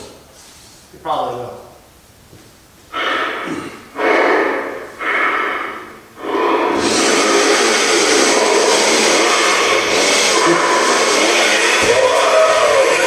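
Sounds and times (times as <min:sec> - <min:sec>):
animatronic sound effects: 0:02.9 - 0:13.0.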